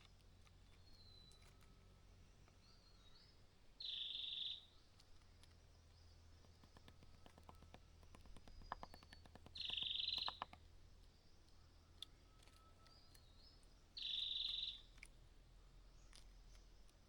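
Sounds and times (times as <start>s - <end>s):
small birds buzzy calls: 3.2s - 4.7s, 6.5s - 10.6s, 14.0s - 15.0s.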